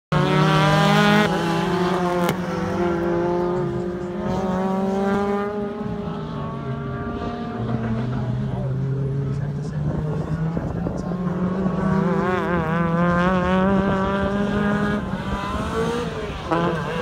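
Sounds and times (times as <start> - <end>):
car engine revving hard: 0.1 - 17.0.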